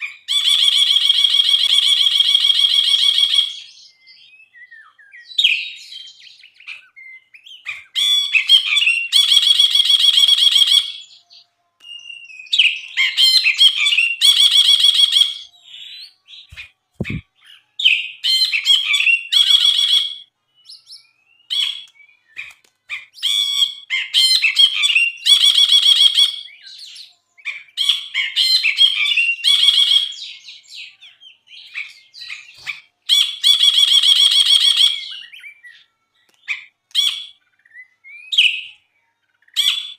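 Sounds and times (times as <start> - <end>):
bulbul singing trills: 0.0 - 39.9
short bird chirps: 16.4 - 17.6.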